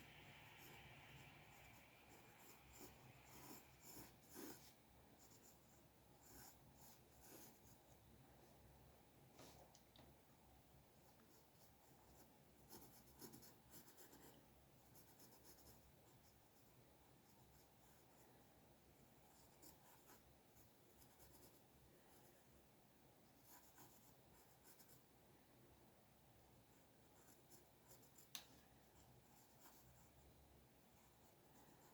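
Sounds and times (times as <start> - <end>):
drawing tool scratching paper: 1.5 - 7.8.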